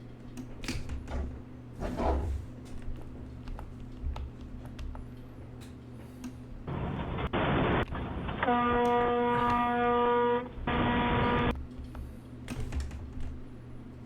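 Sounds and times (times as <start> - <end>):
vehicle horn: 8.4 - 11.5.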